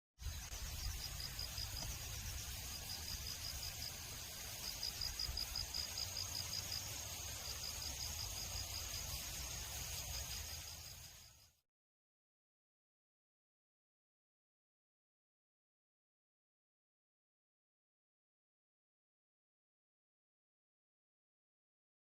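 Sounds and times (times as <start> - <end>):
insects chirping in rapid pulses: 0.2 - 11.6
steady high insect drone: 0.2 - 11.6.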